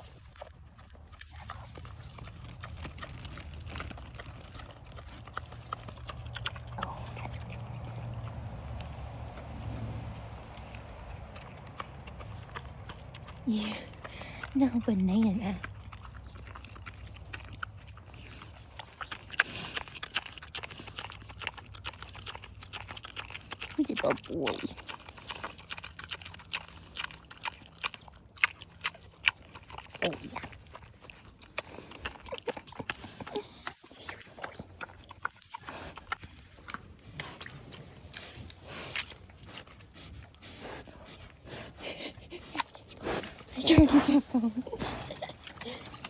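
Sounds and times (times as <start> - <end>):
low rumble: 0.0 - 18.8
animal crunching toast: 0.0 - 46.0
low hum: 0.0 - 46.0.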